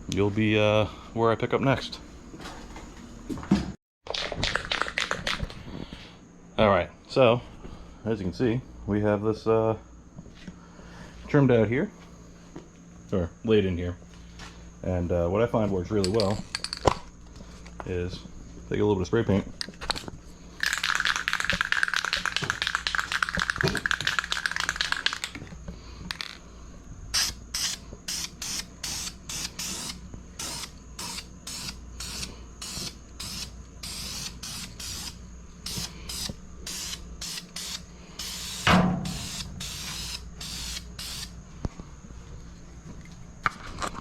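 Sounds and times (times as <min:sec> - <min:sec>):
spray can hissing: 0:27.2 - 0:41.3
thump: 0:38.7 - 0:39.2.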